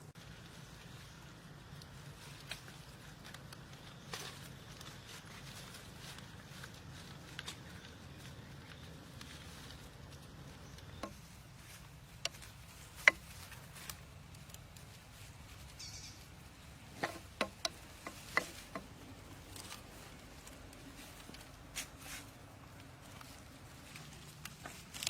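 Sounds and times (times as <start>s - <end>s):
small sharp clicks and taps: 10.7s - 14.9s, 17.0s - 21.4s.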